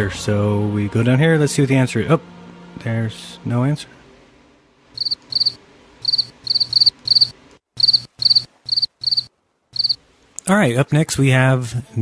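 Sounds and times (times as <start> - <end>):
cricket chirping: 5.0 - 10.0.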